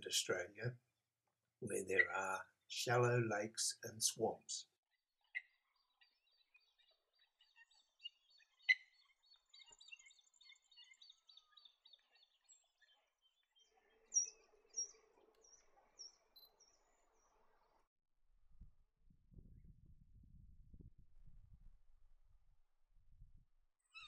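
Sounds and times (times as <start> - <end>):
birds chirping: 1.6 - 4.6, 5.2 - 17.7.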